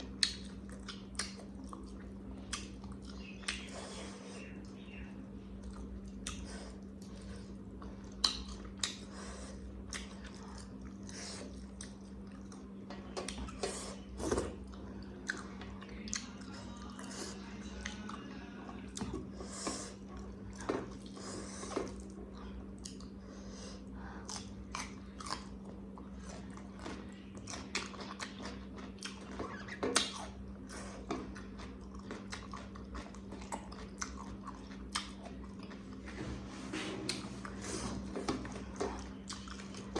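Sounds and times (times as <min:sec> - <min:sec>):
person chewing and biting: 0:00.0 - 0:04.2, 0:05.6 - 0:15.5, 0:24.2 - 0:36.0, 0:37.0 - 0:39.9
steady low hum: 0:00.0 - 0:39.9.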